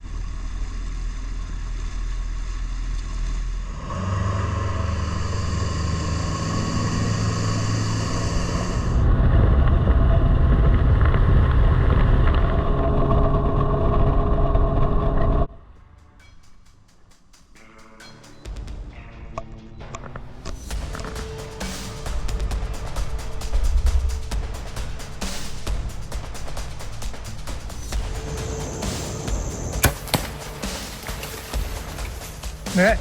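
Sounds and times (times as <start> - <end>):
engine running: 0.0 - 15.5.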